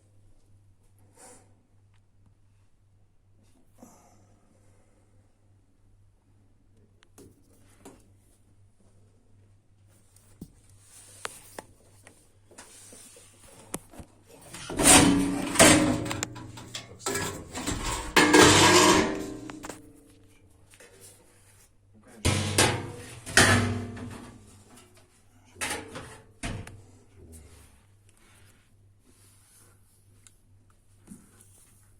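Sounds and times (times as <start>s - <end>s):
clanks and knocks of tools: 14.5s - 19.9s, 25.6s - 26.8s.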